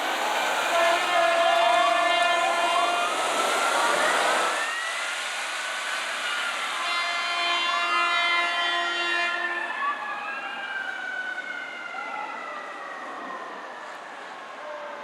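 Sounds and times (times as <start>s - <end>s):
wailing sirens: 0.0s - 15.0s
fire truck horn blasts: 0.6s - 3.5s, 6.7s - 9.8s.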